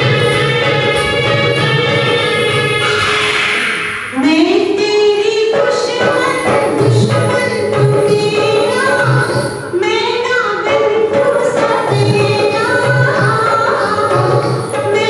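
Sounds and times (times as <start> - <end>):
backing music with low beat: 0.0 - 3.4
women singing: 4.9 - 15.0.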